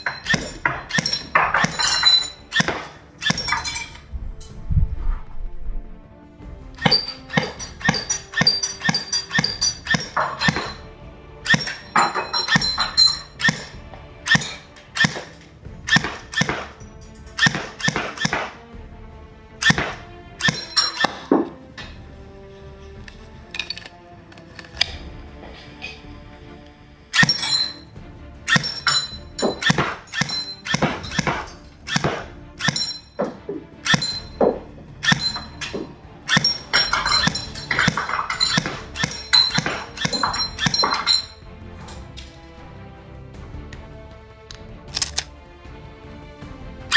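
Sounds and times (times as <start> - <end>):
background music: 0.0 - 46.9
airsoft pistol shots: 45.0 - 45.3.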